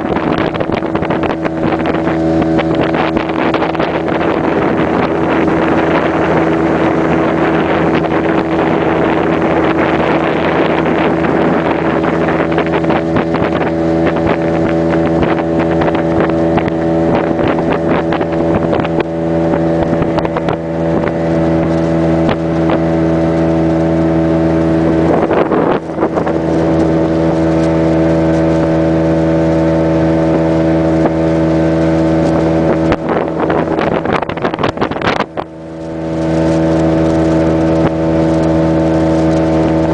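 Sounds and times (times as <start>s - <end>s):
outboard motor running: 0.0s - 39.9s
rushing water: 0.0s - 39.9s
wind: 0.0s - 39.9s.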